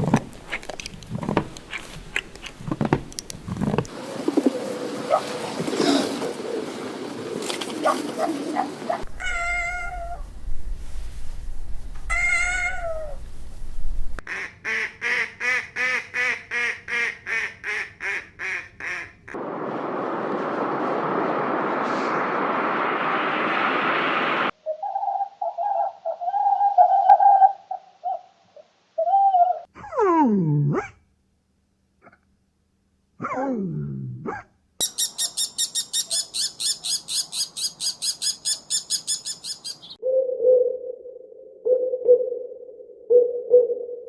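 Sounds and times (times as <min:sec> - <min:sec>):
falling animal call: 0:08.5 - 0:10.3, 0:12.0 - 0:13.2
cat meowing: 0:09.1 - 0:10.3, 0:12.1 - 0:13.2
steady rushing noise: 0:19.4 - 0:24.6.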